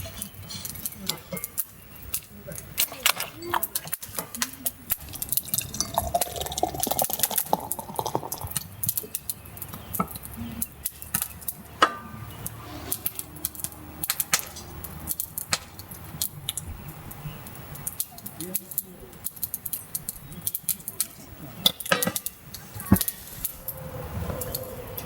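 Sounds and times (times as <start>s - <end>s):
sharp clicks and crackles: 0.1s - 25.0s
liquid pouring into a glass: 4.9s - 8.6s.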